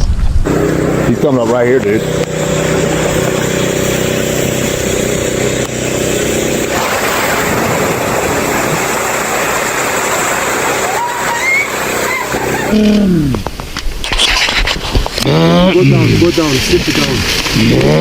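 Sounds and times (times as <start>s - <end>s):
loud even rushing noise: 0.0s - 12.9s
vehicle engine idling: 0.4s - 7.0s.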